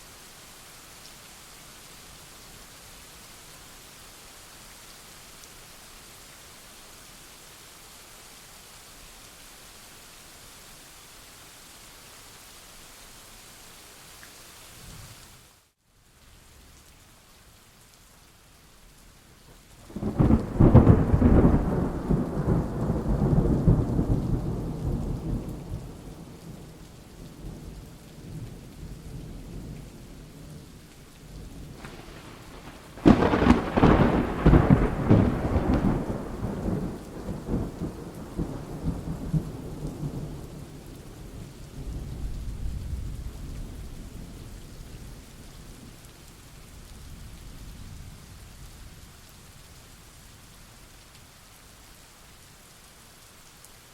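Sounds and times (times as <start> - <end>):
steady rain: 0.0 - 53.9
thunder cracking and rumbling: 19.9 - 26.4, 31.5 - 40.7.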